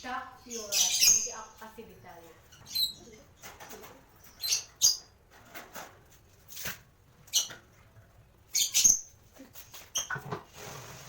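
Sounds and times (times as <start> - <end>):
lovebirds chirping: 0.0 - 5.2, 7.1 - 10.2.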